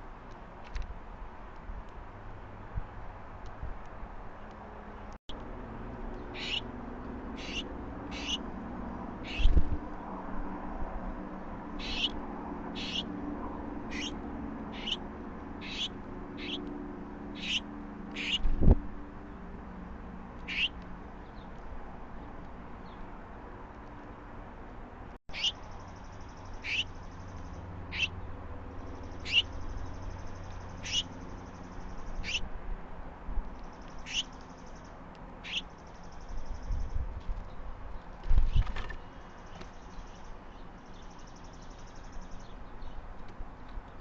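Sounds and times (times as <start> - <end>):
bird chirping: 6.1 - 6.7, 7.3 - 8.4, 9.2 - 9.6, 11.8 - 12.2, 12.8 - 13.1, 13.8 - 15.0, 15.6 - 16.7, 17.4 - 18.5, 20.4 - 21.5, 25.3 - 32.4, 33.6 - 37.0, 38.0 - 43.0.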